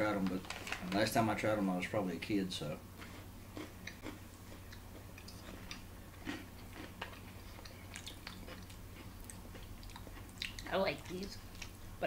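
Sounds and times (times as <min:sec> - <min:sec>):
chewing crunches: 0:03.0 - 0:11.8.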